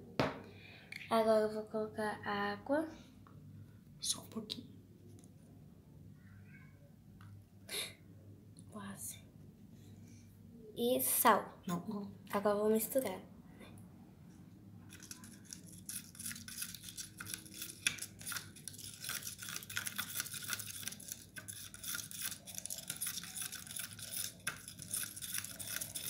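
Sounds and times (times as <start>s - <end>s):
utensil scraping a pot: 14.9s - 26.0s.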